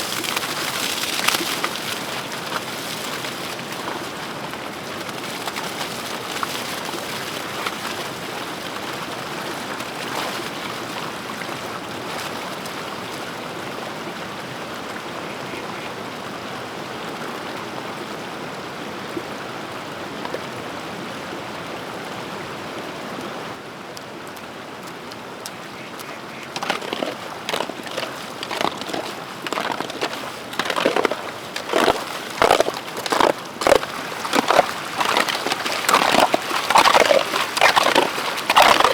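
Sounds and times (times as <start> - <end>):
water rushing: 0.0 - 11.6, 24.2 - 38.9
water splashing and sloshing: 0.0 - 13.4, 24.0 - 38.9.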